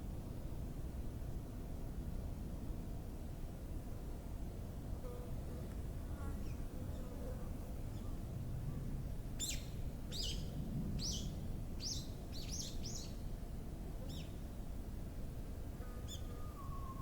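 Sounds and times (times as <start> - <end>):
songbird high chirps: 9.4 - 13.2, 14.0 - 14.4, 16.1 - 17.0.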